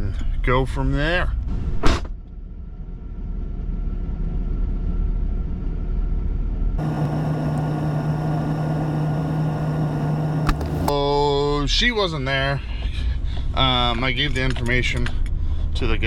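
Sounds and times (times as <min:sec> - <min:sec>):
loud steady low hum: 0:02.4 - 0:11.3
truck engine running: 0:06.8 - 0:10.9.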